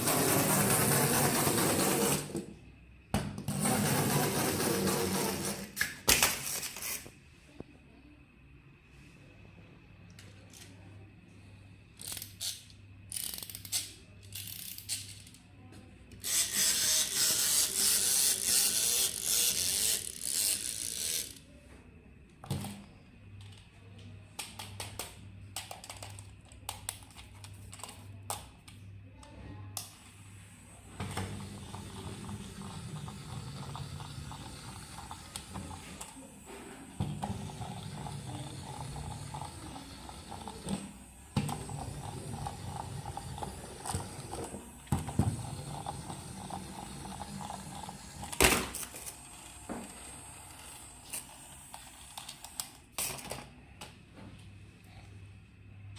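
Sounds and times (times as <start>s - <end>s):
mechanical ratcheting: 12.0s - 15.1s
toy clicks: 12.0s - 15.4s
toy motor and gears whirring: 12.0s - 15.4s, 16.2s - 21.5s, 41.6s - 52.8s.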